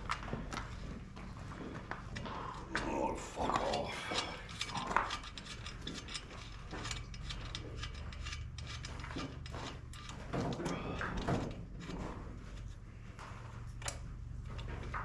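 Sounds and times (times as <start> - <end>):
steady low hum: 0.0 - 15.0
ratchet wrench clicking: 4.1 - 9.3.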